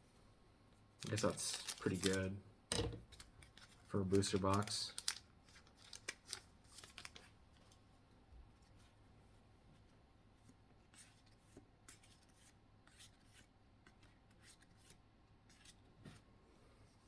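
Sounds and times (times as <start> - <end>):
cards and foil rustling: 1.0 - 2.4, 3.0 - 7.8.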